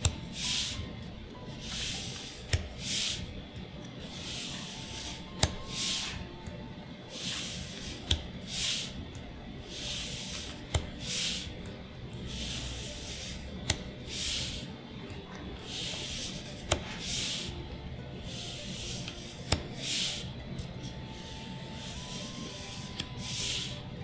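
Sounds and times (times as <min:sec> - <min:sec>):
cards sliding papery swishes: 0:00.1 - 0:00.9, 0:01.5 - 0:03.3, 0:04.0 - 0:06.3, 0:07.1 - 0:09.0, 0:09.7 - 0:11.6, 0:12.3 - 0:14.7, 0:15.6 - 0:17.6, 0:18.2 - 0:24.0.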